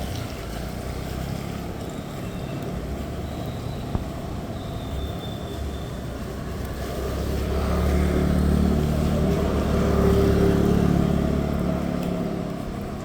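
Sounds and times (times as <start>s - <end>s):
vehicle passing by: 6.7s - 13.0s.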